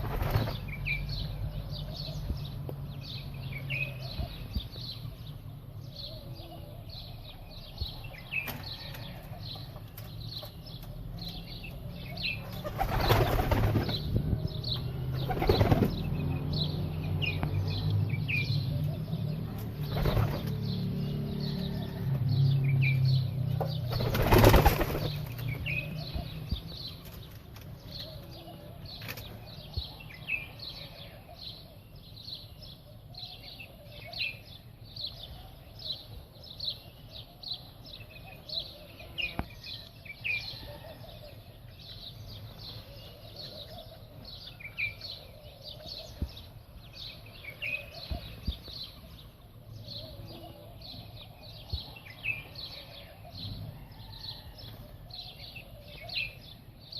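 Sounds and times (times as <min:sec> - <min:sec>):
wings flapping: 0:00.0 - 0:00.7, 0:12.6 - 0:14.1, 0:15.2 - 0:16.0, 0:19.8 - 0:20.6, 0:23.9 - 0:25.4
small birds chirping: 0:00.0 - 0:56.9.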